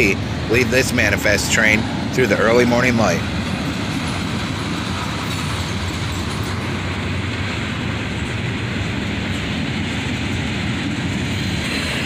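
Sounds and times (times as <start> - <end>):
steel wheels rumbling on rails: 0.0 - 12.0.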